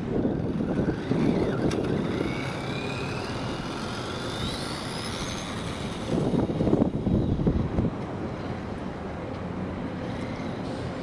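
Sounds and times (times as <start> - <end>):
small electric motor whining: 0.0 - 7.9.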